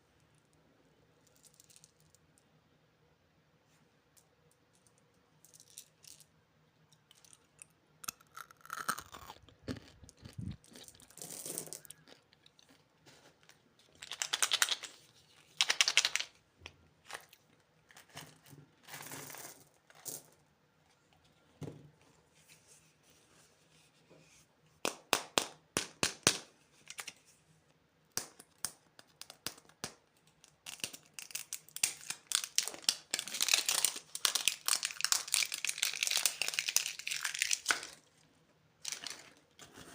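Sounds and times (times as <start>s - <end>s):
plastic wrappers crinkling and tearing: 30.5s - 38.1s, 38.8s - 39.5s.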